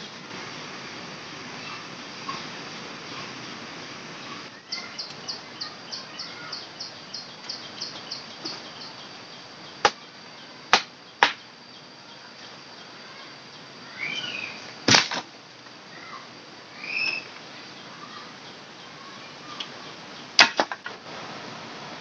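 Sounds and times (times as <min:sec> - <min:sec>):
high insect drone: 0:00.0 - 0:22.0
sharp snaps: 0:10.7 - 0:11.4.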